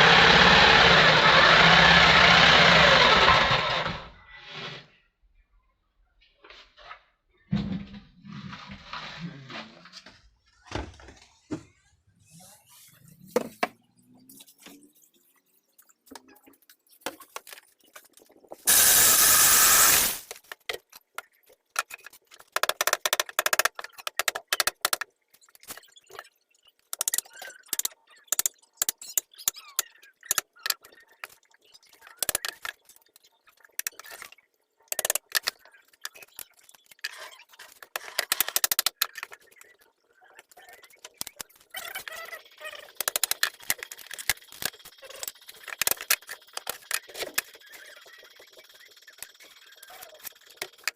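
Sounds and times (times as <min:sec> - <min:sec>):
tools and parts clicking and scraping: 0:16.1 - 0:39.9, 0:40.7 - 0:50.9
loud burst of noise: 0:18.7 - 0:20.2.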